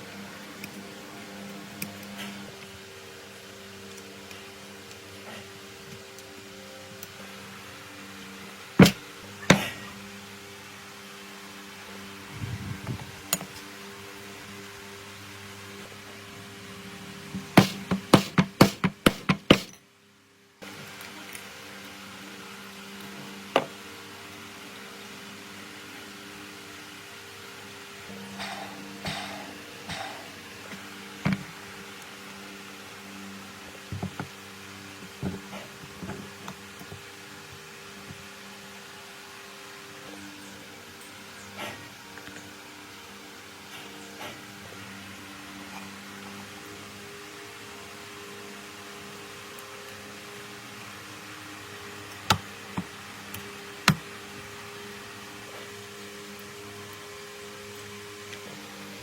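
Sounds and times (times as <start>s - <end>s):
steady hum: 0.0s - 19.8s
mechanical hum: 0.0s - 59.0s
sharp knocks: 8.8s - 9.7s, 17.6s - 19.8s.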